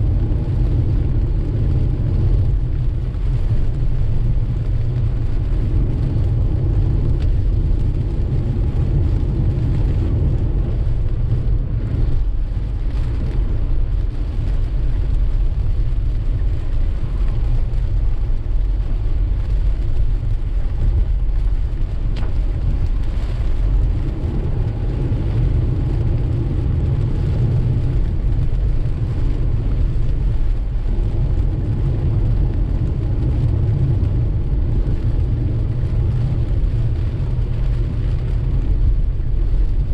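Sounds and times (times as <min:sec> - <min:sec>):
car driving on wet road: 0:00.0 - 0:39.9
rain hissing: 0:00.0 - 0:39.9.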